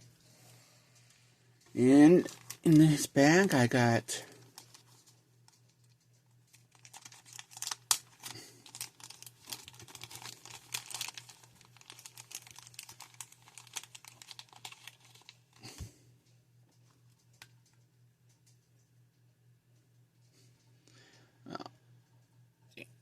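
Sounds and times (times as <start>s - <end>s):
low steady hum: 0.0s - 23.0s
plastic bag crackling: 1.7s - 15.8s.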